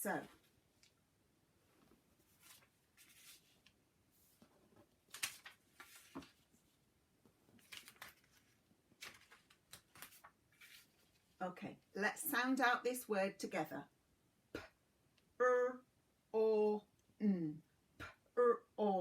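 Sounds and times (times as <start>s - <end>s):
paper cards rustling and clicking: 2.3s - 6.6s, 7.5s - 11.4s.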